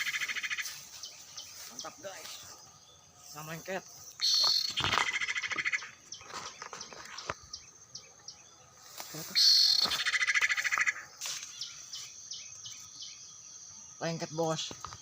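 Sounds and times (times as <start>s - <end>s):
bird call with chattering trill: 0.0s - 2.1s, 4.2s - 7.4s, 9.2s - 13.2s
short high bird chirps: 4.2s - 5.6s, 9.2s - 12.8s.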